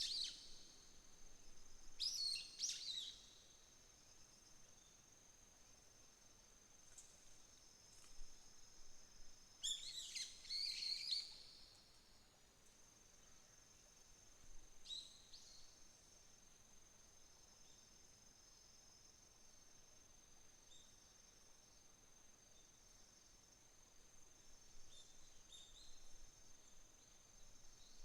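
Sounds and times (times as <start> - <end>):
small bird singing: 0.0 - 0.6, 2.0 - 3.4, 9.6 - 11.6.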